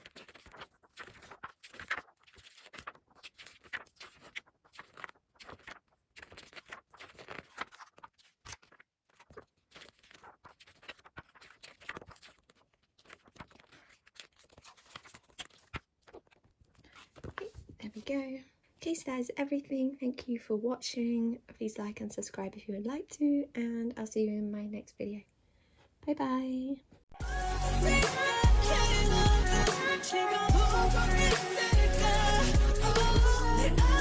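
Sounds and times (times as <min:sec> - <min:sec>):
magazine pages flipping: 0:00.0 - 0:18.0.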